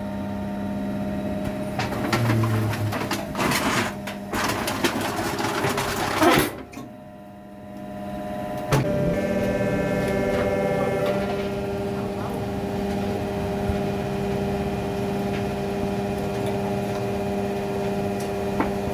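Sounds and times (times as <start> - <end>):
pump motor humming: 0.0 - 18.9.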